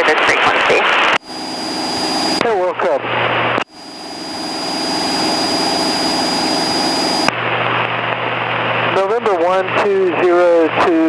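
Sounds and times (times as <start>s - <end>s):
radio transmission hiss: 0.0s - 3.0s, 3.6s - 7.3s
airplane engine droning: 1.1s - 10.8s.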